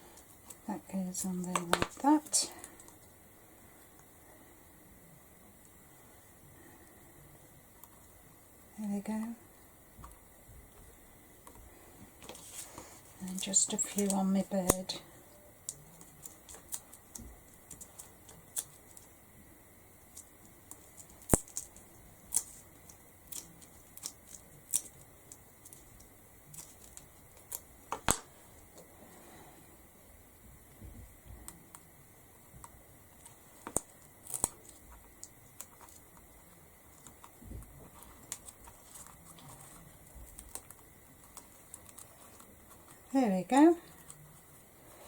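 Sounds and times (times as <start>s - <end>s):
clicks and taps of crafting: 1.4s - 3.0s
light paper rustling: 12.2s - 14.7s.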